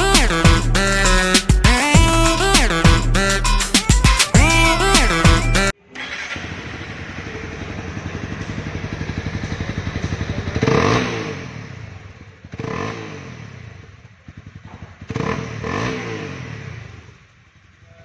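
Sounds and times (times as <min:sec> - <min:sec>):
motorcycle engine idling and blipped: 0:00.0 - 0:18.0.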